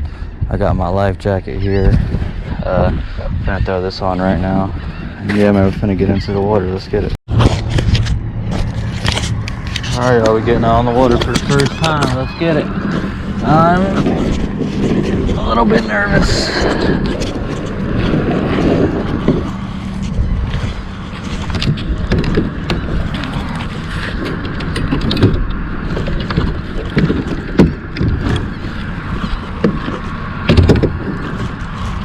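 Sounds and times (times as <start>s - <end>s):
wind rumbling on microphone: 0.0s - 32.0s
plastic kayak knocking and thudding: 29.5s - 31.6s.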